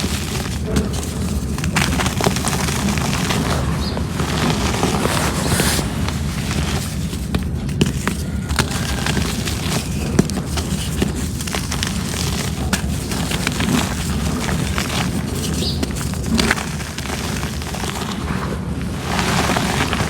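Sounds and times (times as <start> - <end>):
cement chunks crumbling: 0.0 - 20.0
low rumble: 0.6 - 7.4.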